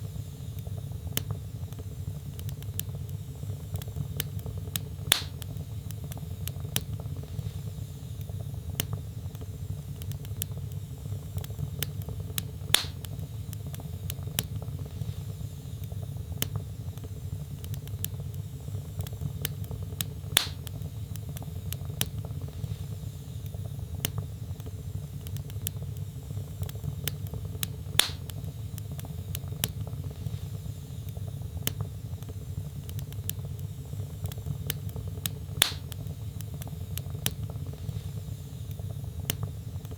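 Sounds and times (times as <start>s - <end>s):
log fire crackling: 0.1s - 39.9s
loud fire pop: 5.1s - 5.4s, 20.4s - 20.6s, 28.0s - 28.3s, 35.6s - 35.9s.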